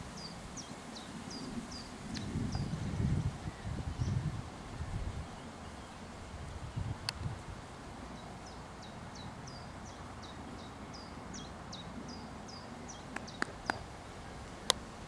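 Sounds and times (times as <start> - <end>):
wind noise: 0.0 - 8.0.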